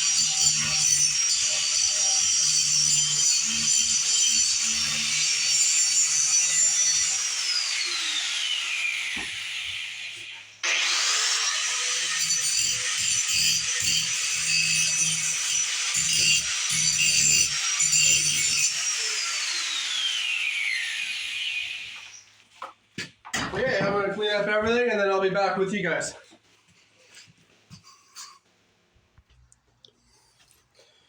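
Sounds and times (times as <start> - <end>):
angle grinder grinding metal: 0.0 - 22.3.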